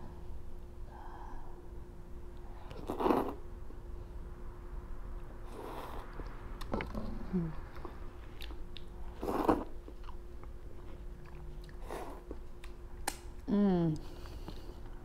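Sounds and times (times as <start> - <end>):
person chewing noodles: 7.7 - 12.8.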